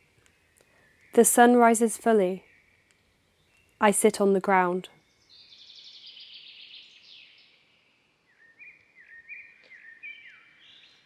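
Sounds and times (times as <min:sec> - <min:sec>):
bird trill: 0:05.0 - 0:11.0.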